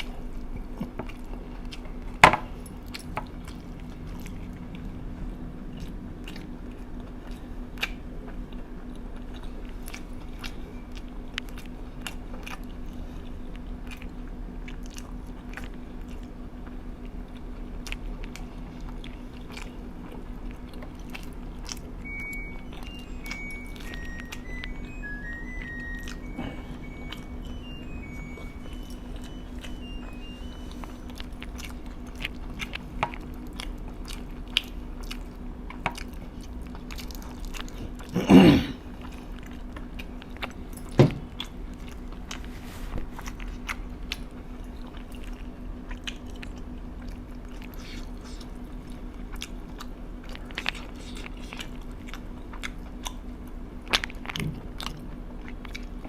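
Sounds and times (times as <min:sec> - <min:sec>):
person chewing crunchy food: 0:00.0 - 0:56.0
low hum: 0:19.0 - 0:49.1.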